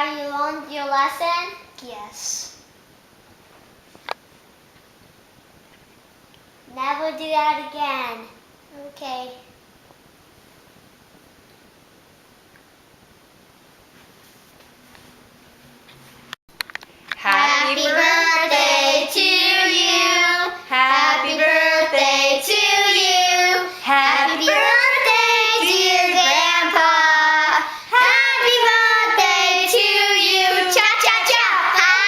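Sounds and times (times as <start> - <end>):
child singing loudly: 24.2 - 26.8, 30.4 - 32.0.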